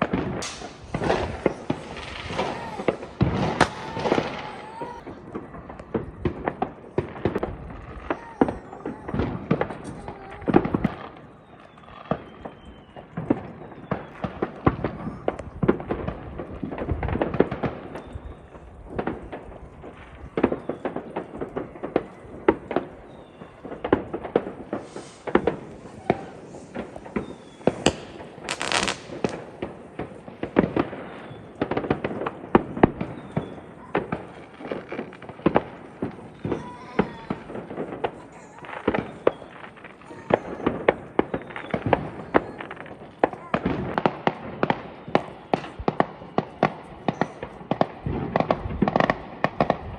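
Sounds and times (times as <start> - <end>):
fireworks hiss: 0.0 - 11.7, 24.7 - 29.6
fireworks bangs and crackles: 0.0 - 49.9.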